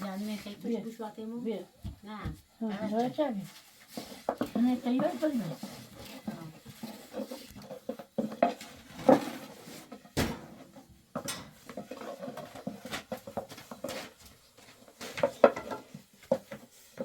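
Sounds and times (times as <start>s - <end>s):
pots and metal utensils clattering: 3.8s - 17.0s.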